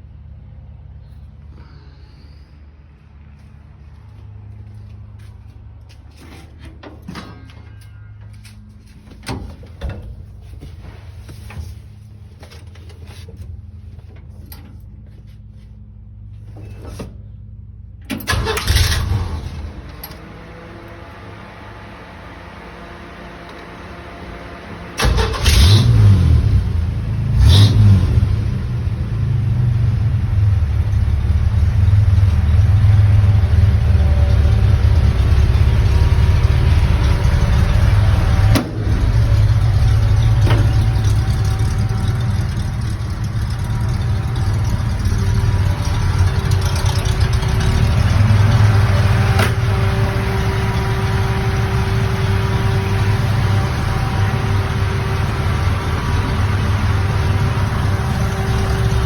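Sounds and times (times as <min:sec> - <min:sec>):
car engine revving and idling: 0:18.3 - 0:59.0.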